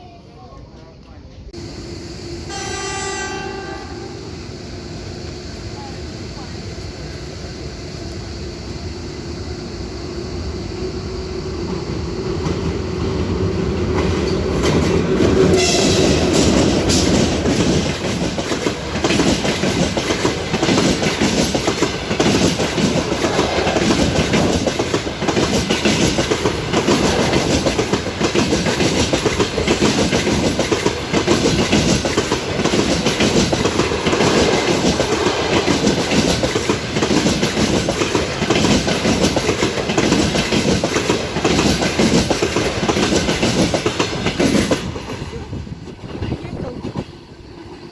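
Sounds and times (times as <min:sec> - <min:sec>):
passenger train passing: 0:00.0 - 0:47.9
train wheels clacking over rail joints: 0:13.8 - 0:47.2.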